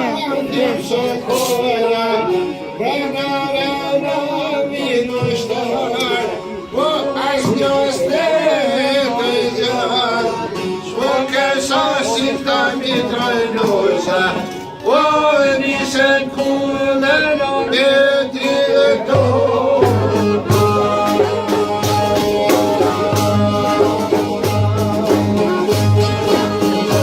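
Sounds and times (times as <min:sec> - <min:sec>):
man singing folk song: 0:00.0 - 0:27.0
frame drum beating: 0:19.1 - 0:27.0.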